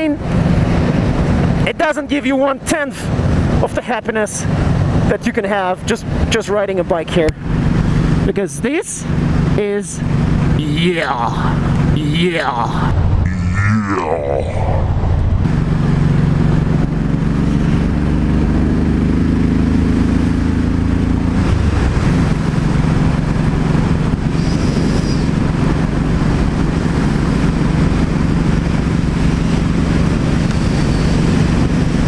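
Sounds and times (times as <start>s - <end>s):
wind rushing: 11.3s - 18.0s
motorcycle engine running: 15.5s - 32.0s.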